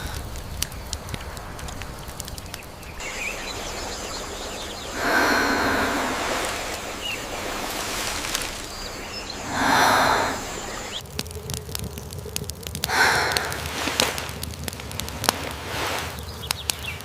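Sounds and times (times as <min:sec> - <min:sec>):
sharp crackling clicks: 0:00.0 - 0:03.9, 0:08.2 - 0:17.0
bird chirp: 0:01.6 - 0:11.0.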